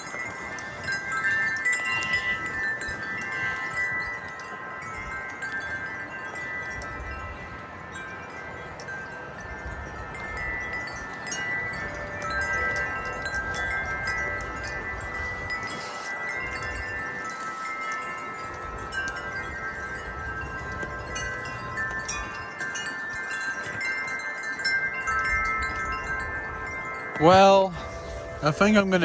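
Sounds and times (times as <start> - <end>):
wind chimes ringing: 0.0 - 29.0.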